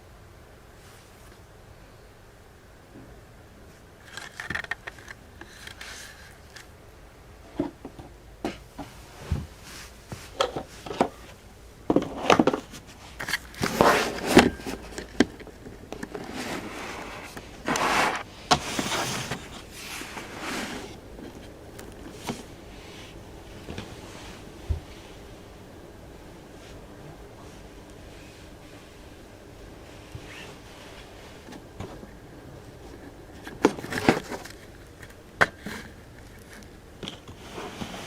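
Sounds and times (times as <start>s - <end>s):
cat scraping and rustling: 12.1s - 15.0s, 16.1s - 23.2s, 37.3s - 38.0s.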